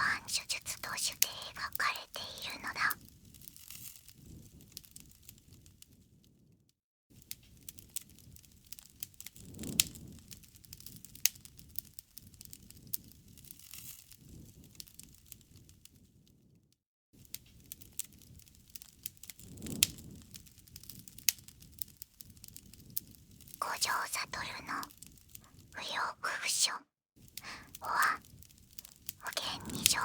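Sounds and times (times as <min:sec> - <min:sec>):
wood fire crackling: 0:00.0 - 0:06.0, 0:07.2 - 0:16.0, 0:17.2 - 0:26.6, 0:27.2 - 0:30.0
low rumble of flames: 0:02.3 - 0:16.6, 0:17.2 - 0:25.8, 0:27.2 - 0:30.0.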